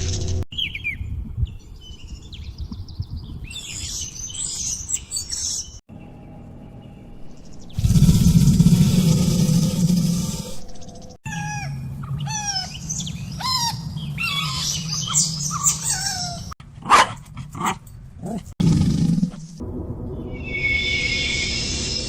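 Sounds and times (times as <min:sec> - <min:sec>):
puppy barking: 0:15.6 - 0:18.4.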